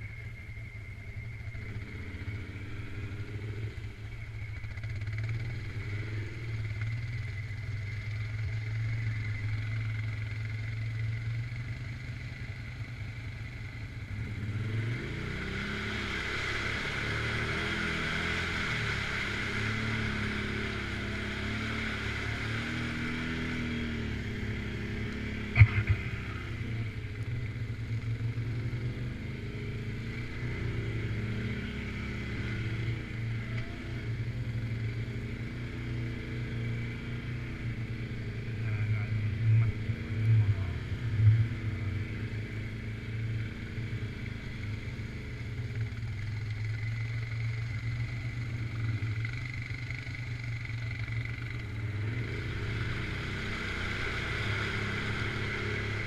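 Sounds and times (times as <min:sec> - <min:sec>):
atv engine revving: 0:01.4 - 0:56.0
sharp knock: 0:25.6 - 0:26.1.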